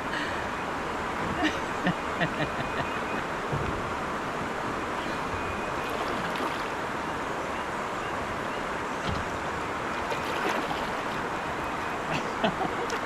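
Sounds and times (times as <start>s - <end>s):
creek water rushing over rocks: 3.3s - 7.5s, 9.6s - 13.0s.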